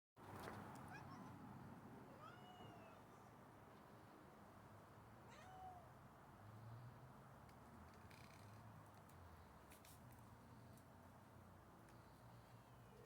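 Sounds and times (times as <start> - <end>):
cat meowing: 2.2 - 3.0, 5.3 - 5.9.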